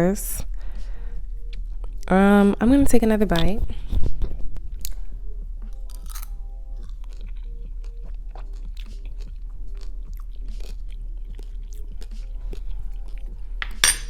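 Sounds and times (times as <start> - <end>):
close chewing of juicy fruit: 5.6 - 13.6.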